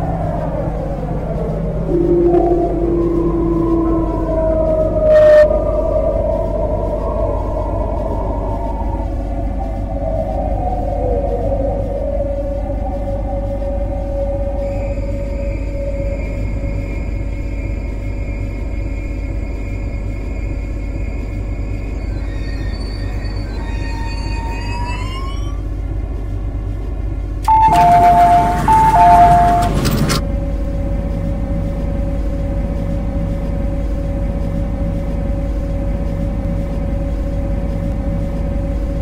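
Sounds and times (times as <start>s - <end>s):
rising whine: 0.0s - 39.0s
steady hum: 0.0s - 39.0s
train cab rumble: 6.0s - 39.0s
two-tone alarm sound: 27.5s - 30.2s.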